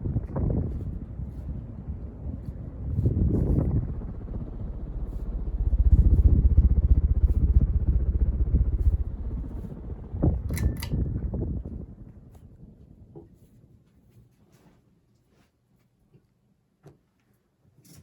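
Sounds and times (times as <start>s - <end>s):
ceiling fan draft rumble: 0.0s - 13.5s.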